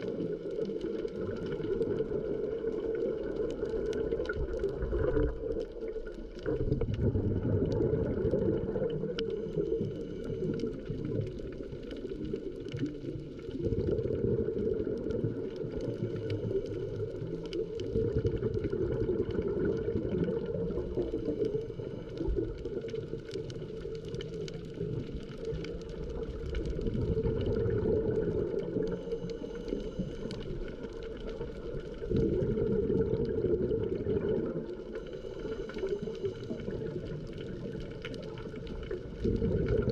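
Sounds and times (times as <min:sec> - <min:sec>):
exhaust bubbles gurgling: 0:00.0 - 0:39.9
faint steady tones: 0:08.5 - 0:13.8, 0:14.5 - 0:39.6.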